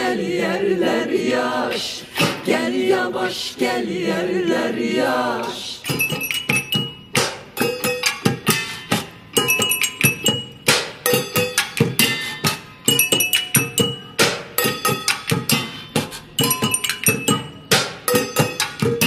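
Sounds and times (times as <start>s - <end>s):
driving drum and hand percussion: 5.9s - 19.0s.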